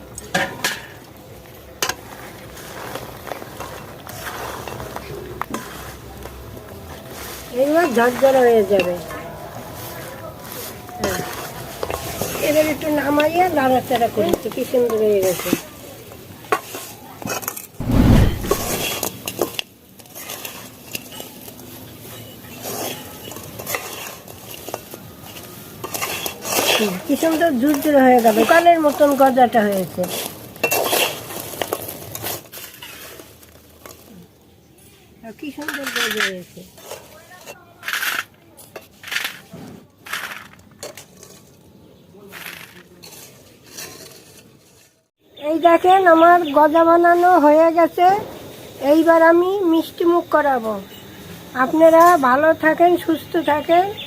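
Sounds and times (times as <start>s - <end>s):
utensil scraping a pan: 16.5s - 19.1s, 22.6s - 33.6s, 42.3s - 45.0s
heavy thump: 17.8s - 18.9s.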